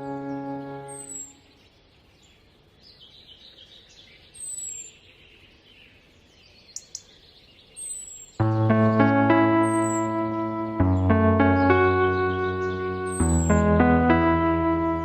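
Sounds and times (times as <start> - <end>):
background music: 0.0 - 1.4, 8.4 - 15.0
bird chirping: 0.0 - 15.0
faint outdoor ambience: 0.0 - 15.0
rustle: 1.5 - 8.4.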